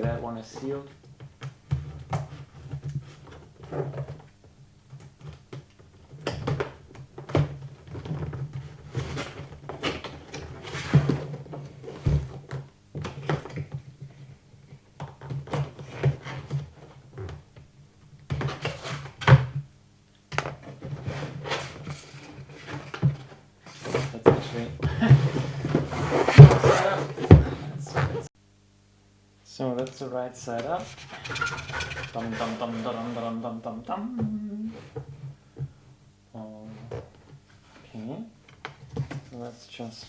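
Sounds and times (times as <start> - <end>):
cardboard rustling and tearing: 24.0 - 28.3
low steady hum: 24.0 - 37.2.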